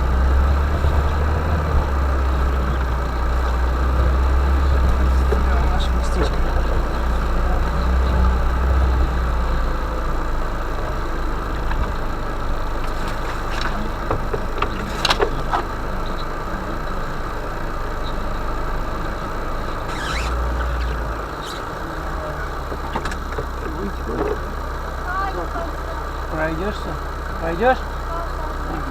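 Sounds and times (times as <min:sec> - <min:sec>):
vehicle engine running: 0:00.0 - 0:28.9
sharp knocks and rattles: 0:11.5 - 0:16.4, 0:22.5 - 0:24.5.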